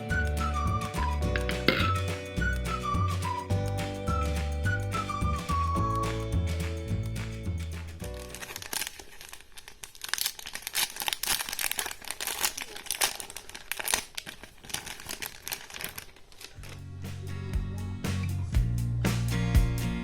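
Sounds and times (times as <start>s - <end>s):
packaging wrapper crinkling: 7.6s - 16.8s.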